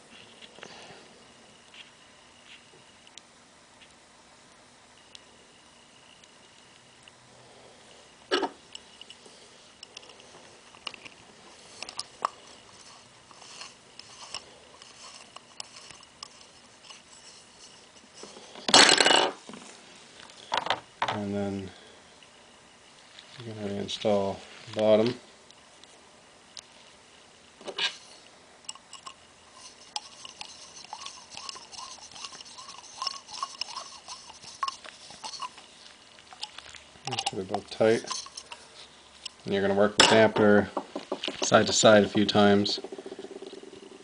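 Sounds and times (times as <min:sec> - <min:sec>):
screw threading with hand tool: 0:12.8 - 0:18.4, 0:28.7 - 0:35.6
small metal parts clicking: 0:28.7 - 0:35.6, 0:36.3 - 0:38.6.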